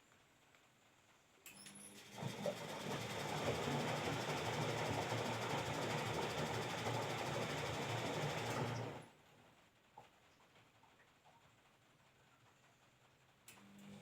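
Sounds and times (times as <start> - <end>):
washing machine running: 1.8 - 9.2.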